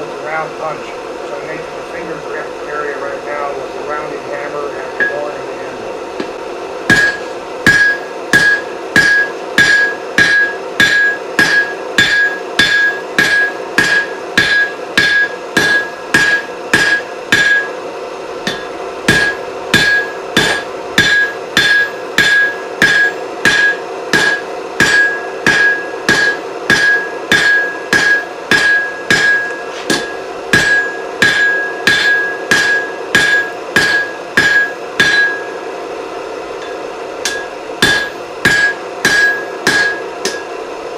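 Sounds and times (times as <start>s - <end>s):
steady low hum: 0.0s - 40.9s
hammer striking hot iron on anvil: 5.0s - 5.4s, 6.2s - 17.8s, 18.4s - 35.7s, 36.6s - 40.6s.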